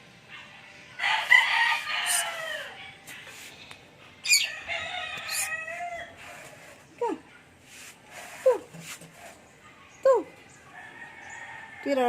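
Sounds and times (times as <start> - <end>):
rooster crowing: 1.0 - 2.9, 4.3 - 6.6.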